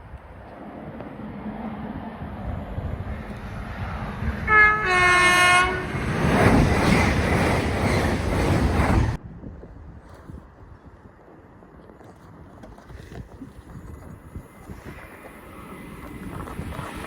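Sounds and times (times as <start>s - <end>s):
train wheels rumbling on rails: 0.4s - 9.2s, 14.2s - 17.0s
train two-tone horn: 4.5s - 6.0s.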